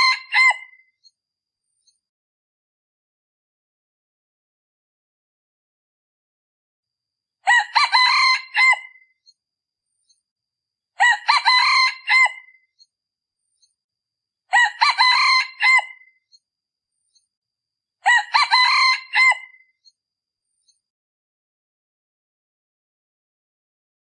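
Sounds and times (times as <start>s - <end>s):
rooster crowing: 0.0s - 0.7s, 7.4s - 9.0s, 11.0s - 12.6s, 14.5s - 16.1s, 18.0s - 19.6s.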